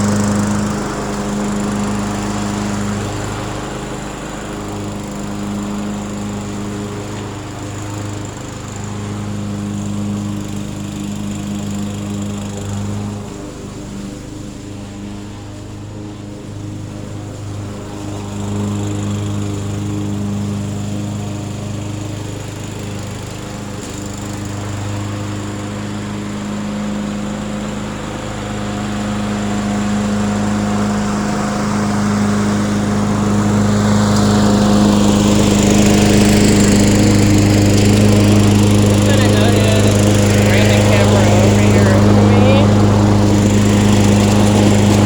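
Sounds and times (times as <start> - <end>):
lawn mower engine running: 0.0 - 45.0.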